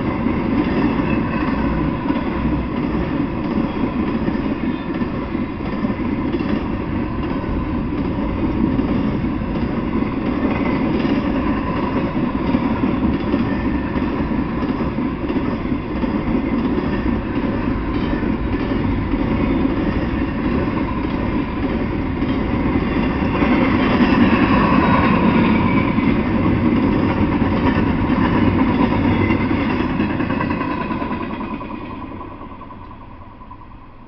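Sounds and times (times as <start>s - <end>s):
freight train wheels rumbling: 0.0s - 34.0s.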